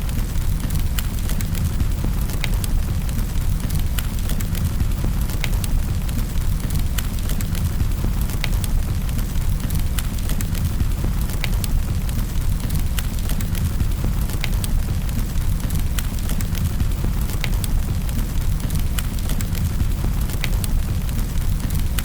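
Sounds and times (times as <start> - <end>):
fire pops and snaps: 0.0 - 22.0
wood fire crackling: 0.0 - 22.0.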